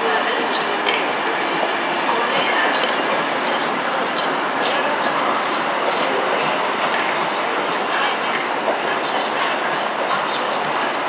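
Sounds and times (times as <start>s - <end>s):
train wheels rumbling on rail: 0.0s - 11.0s
high wheel squeal: 4.8s - 7.8s.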